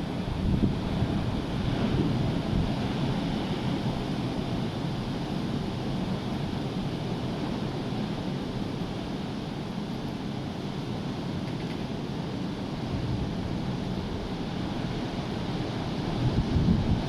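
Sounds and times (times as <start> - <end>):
wind buffeting microphone: 0.0 - 5.8, 12.8 - 17.0.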